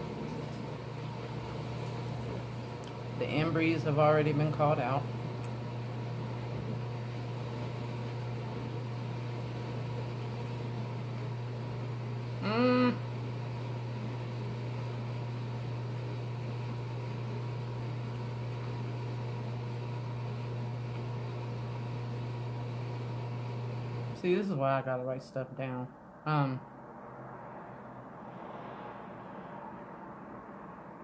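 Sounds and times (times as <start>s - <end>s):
low mechanical hum: 0.0s - 26.6s
person humming: 12.3s - 13.2s.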